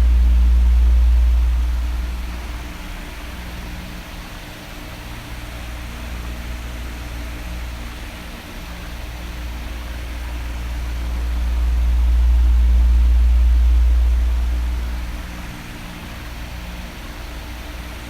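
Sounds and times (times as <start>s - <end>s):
electric fan running: 0.0s - 18.0s.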